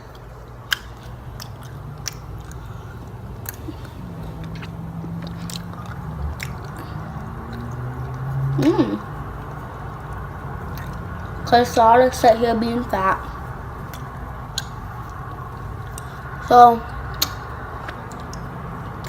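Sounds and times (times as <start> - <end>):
chewing sticky slime: 0.0 - 11.5, 13.2 - 19.0
wet mouth clicks and smacks: 0.1 - 8.4, 9.4 - 11.3, 17.2 - 19.0
person humming: 8.6 - 9.1.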